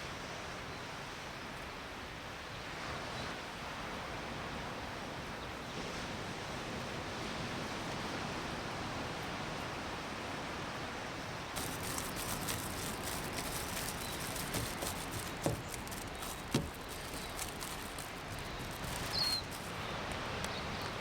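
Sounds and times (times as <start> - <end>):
small crackles and clicks: 11.6 - 21.0.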